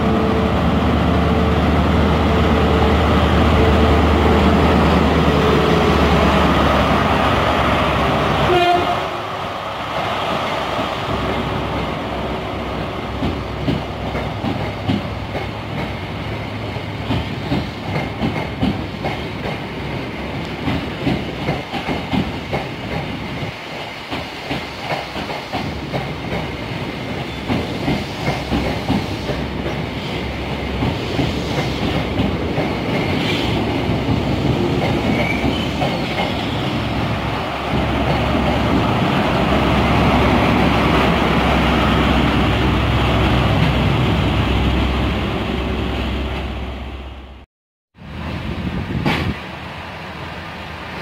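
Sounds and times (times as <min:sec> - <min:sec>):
train wheels clicking over rail joints: 0:13.1 - 0:16.1, 0:17.0 - 0:19.7, 0:20.4 - 0:36.7.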